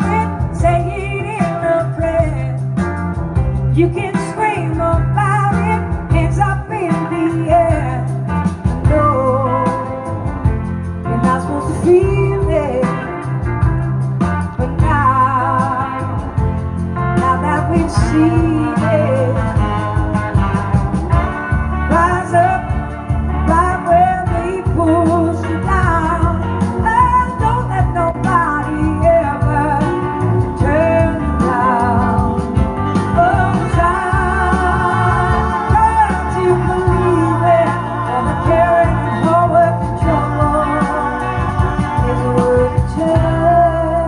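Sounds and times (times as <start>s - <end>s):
blues-rock band music: 0.0s - 44.0s
lead vocal with vibrato: 21.8s - 44.0s.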